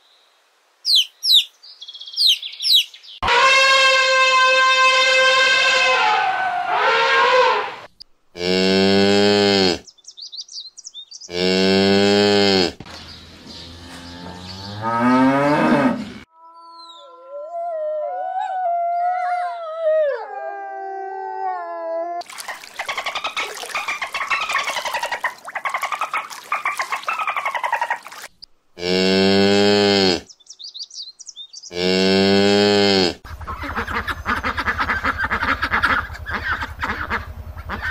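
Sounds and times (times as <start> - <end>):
elephant bellowing: 3.2 - 9.8
wolf howling: 17.0 - 22.2
dolphins clicking and whistling: 22.2 - 28.3.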